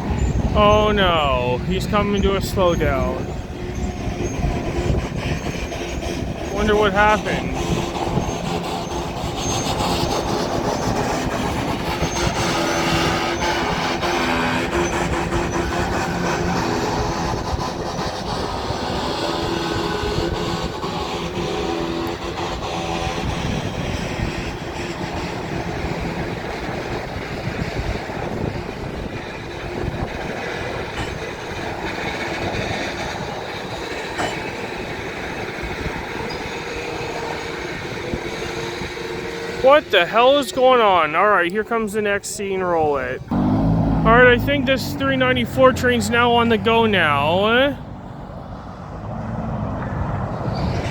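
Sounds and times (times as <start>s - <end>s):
freight train cars rolling: 0.0s - 50.9s
high brake squeals: 2.2s - 6.6s, 7.3s - 11.1s, 35.4s - 40.4s
wheels clicking over rails: 7.5s - 39.6s.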